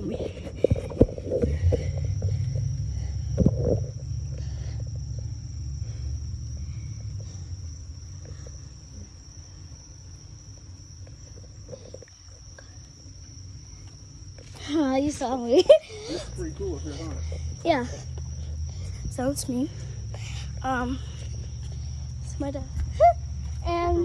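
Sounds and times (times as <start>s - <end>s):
low rumble on microphone: 0.0s - 24.0s.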